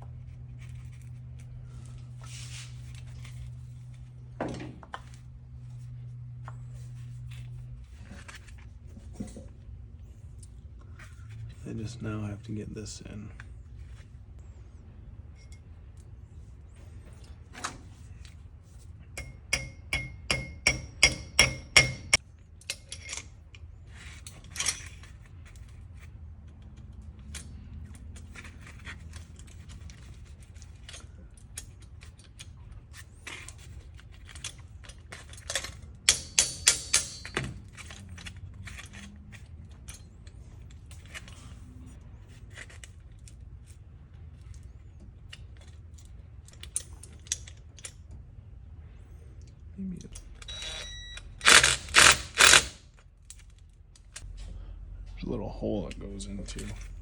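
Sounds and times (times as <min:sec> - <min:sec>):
low steady hum: 0:00.0 - 0:57.0
metal-on-metal taps ringing: 0:19.2 - 0:22.2.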